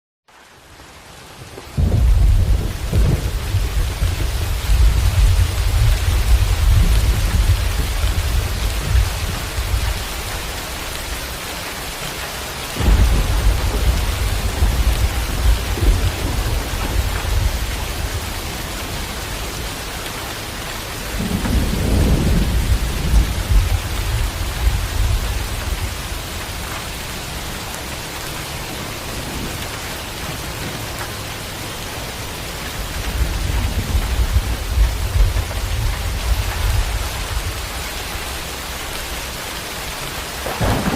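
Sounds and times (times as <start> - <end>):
steady rain: 0.3 - 40.9
rolling thunder: 1.8 - 10.3, 12.8 - 19.8, 21.0 - 26.8, 33.0 - 38.4, 40.4 - 40.9.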